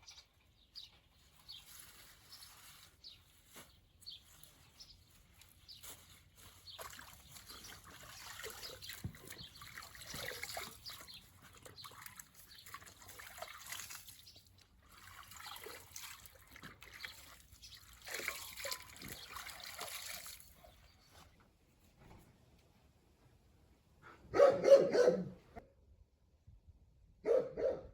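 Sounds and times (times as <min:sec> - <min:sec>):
water trickling and splashing: 0:04.2 - 0:21.0
water dripping: 0:06.6 - 0:20.6.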